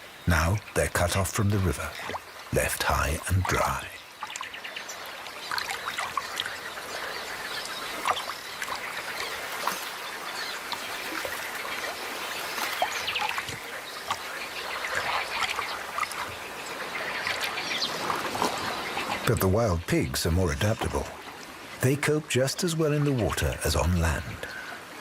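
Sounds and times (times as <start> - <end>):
birds calling: 0.0 - 25.0
water trickling: 0.0 - 25.0
fish splashing in shallow water: 1.9 - 2.5, 4.0 - 19.2.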